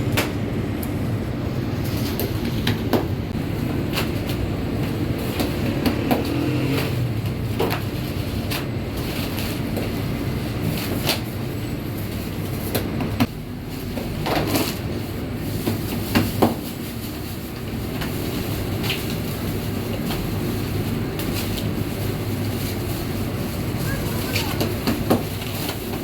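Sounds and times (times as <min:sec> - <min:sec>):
machinery humming: 0:00.0 - 0:09.7, 0:18.5 - 0:25.0.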